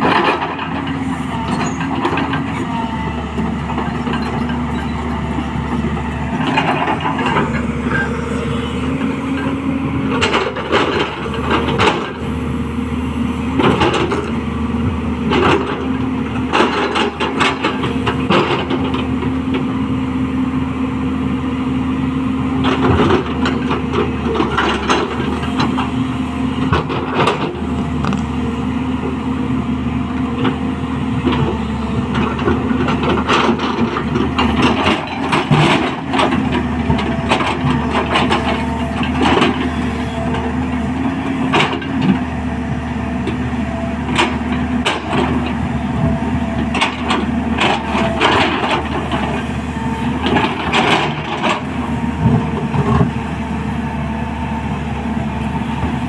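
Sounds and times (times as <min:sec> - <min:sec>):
excavator engine running: 0:00.0 - 0:56.0.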